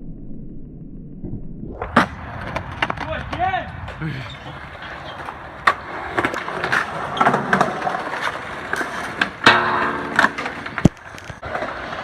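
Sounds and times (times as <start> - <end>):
skateboard rolling: 1.6 - 12.0
skateboard clacks and impacts: 1.9 - 12.0.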